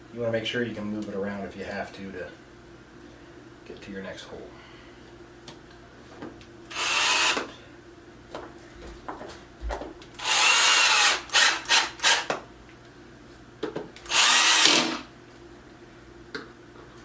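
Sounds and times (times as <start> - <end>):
cordless drill driving screws: 6.7 - 7.5, 10.2 - 12.3, 14.0 - 15.1.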